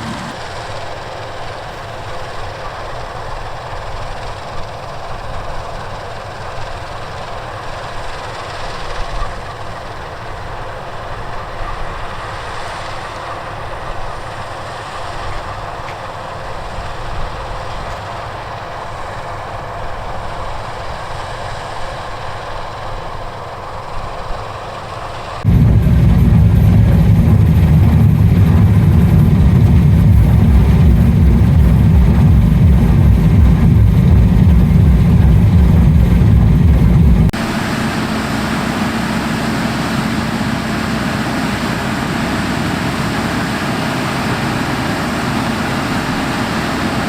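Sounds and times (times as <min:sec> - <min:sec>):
harvest machinery rumbling and rattling: 0:25.5 - 0:47.0.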